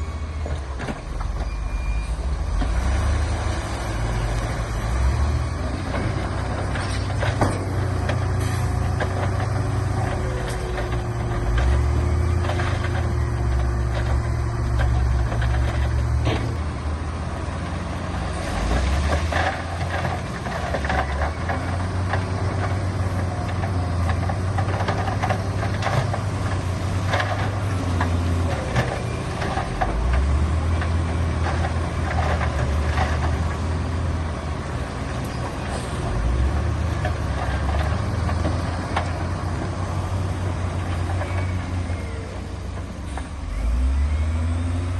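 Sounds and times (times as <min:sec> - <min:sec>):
diesel machinery engine running: 0:00.0 - 0:44.9
clanks and knocks: 0:05.9 - 0:16.7.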